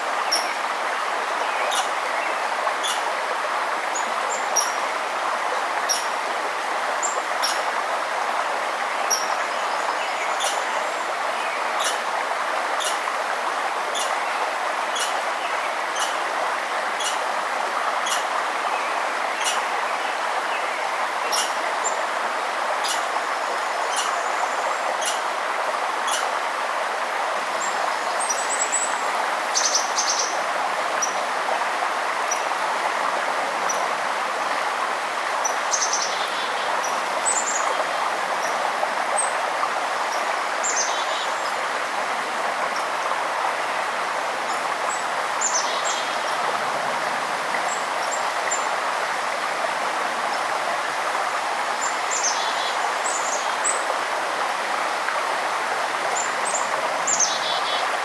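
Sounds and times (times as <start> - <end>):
river water flowing: 0.0 - 58.0
small birds chirping: 1.5 - 3.0, 9.1 - 12.0, 12.8 - 13.0, 13.9 - 14.2, 14.9 - 16.2, 17.0 - 17.2, 23.7 - 25.2.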